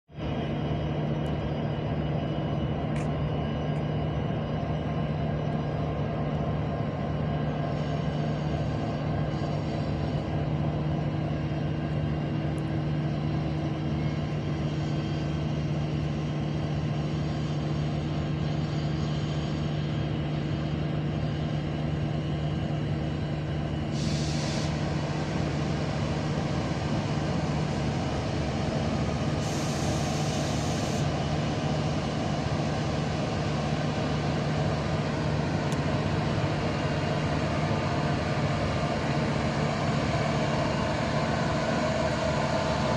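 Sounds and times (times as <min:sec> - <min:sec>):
train power car humming: 0:00.1 - 0:42.9
equipment drone: 0:00.2 - 0:42.9
air hiss: 0:23.9 - 0:25.0, 0:29.4 - 0:31.1.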